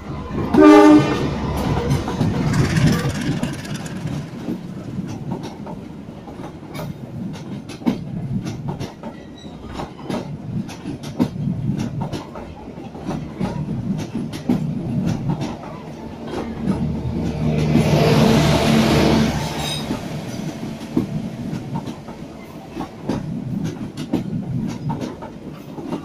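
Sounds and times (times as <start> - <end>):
train rumbling past: 0.0 - 26.0
wheels clicking over rail joints: 1.6 - 17.8.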